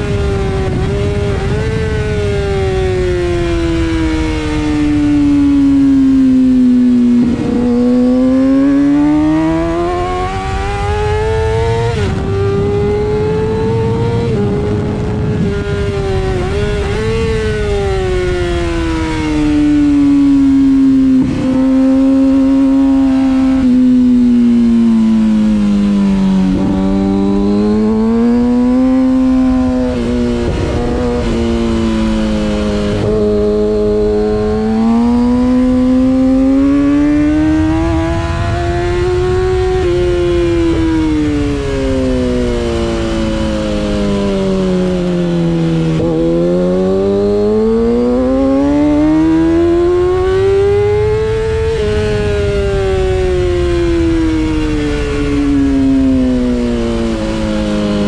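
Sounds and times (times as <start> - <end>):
wind rush: 0.0 - 47.2
motorcycle engine revving: 0.0 - 58.0.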